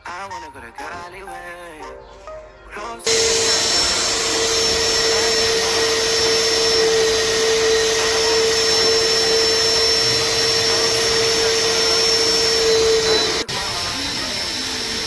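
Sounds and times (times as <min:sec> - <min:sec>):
vacuum cleaner running: 0:03.0 - 0:15.0.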